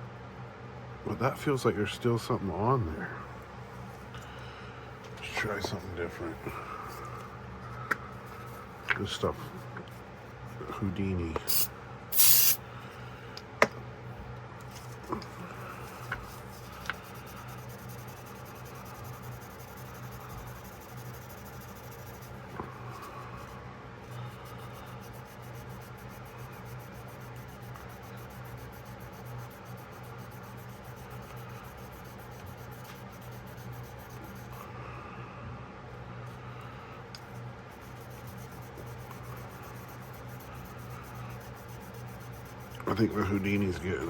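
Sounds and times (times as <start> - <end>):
scratchy rubbing of knife blade: 11.5 - 12.6.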